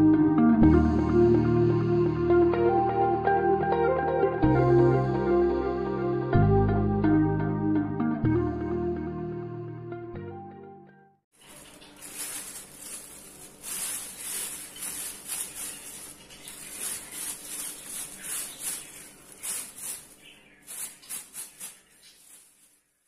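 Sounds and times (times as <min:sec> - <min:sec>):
surface being scrubbed by hand: 0:11.4 - 0:22.8.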